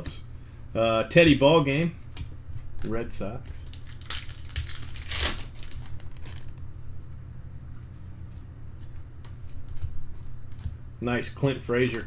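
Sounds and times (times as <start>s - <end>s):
low steady hum: 0.0s - 12.0s
trading cards rustling: 2.8s - 6.6s.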